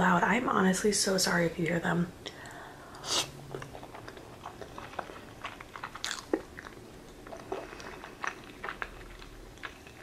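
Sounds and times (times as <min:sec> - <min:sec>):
person chewing with mouth clicks: 0:02.9 - 0:10.0.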